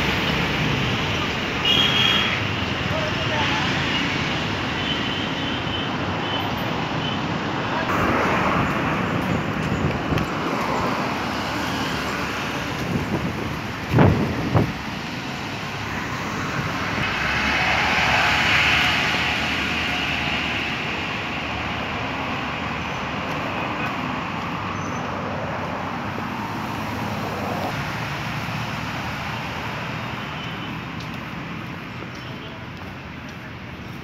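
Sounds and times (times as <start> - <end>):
background traffic rumble: 0.0 - 34.0
engine passing by: 7.9 - 30.2.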